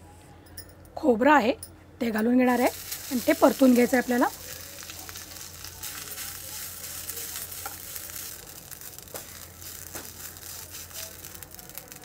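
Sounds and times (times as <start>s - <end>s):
coconut sizzling in a pan: 2.4s - 12.0s.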